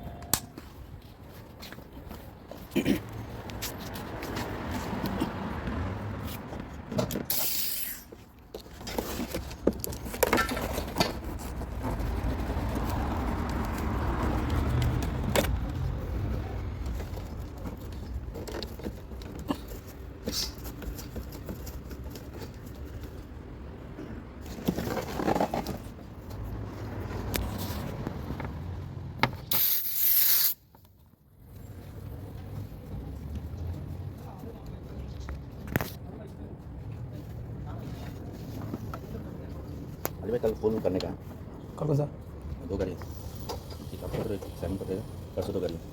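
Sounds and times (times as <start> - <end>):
short hiss: 7.3 - 8.1, 29.5 - 30.6.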